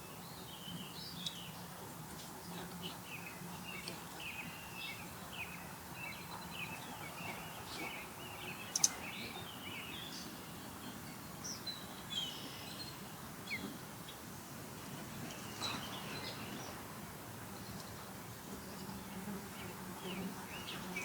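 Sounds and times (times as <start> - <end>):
steady outdoor hiss: 0.0 - 21.0
birds chirping: 2.8 - 12.9.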